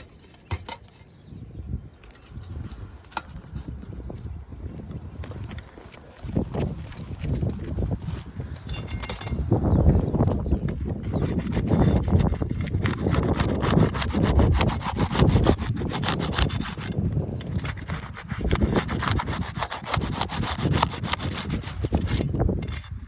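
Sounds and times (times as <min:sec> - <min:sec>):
hand saw cutting wood: 0:10.8 - 0:23.0.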